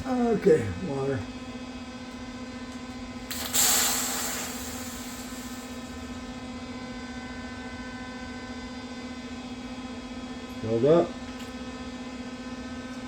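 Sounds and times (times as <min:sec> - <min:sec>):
electrical hum: 0:00.0 - 0:13.0
water hissing over metal: 0:03.3 - 0:05.8.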